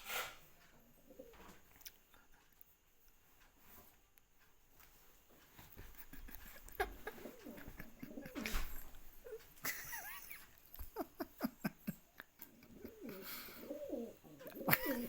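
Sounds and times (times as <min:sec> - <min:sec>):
pigeon cooing: 0:00.9 - 0:01.7, 0:06.8 - 0:09.5, 0:12.4 - 0:15.0.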